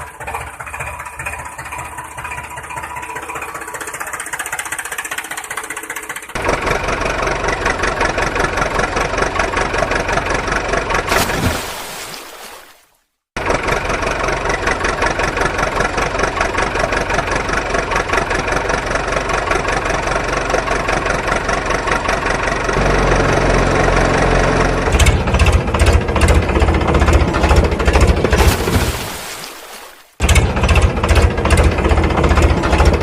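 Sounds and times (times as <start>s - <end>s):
vehicle engine rattling: 0.0s - 11.1s, 13.4s - 29.1s, 30.1s - 33.0s.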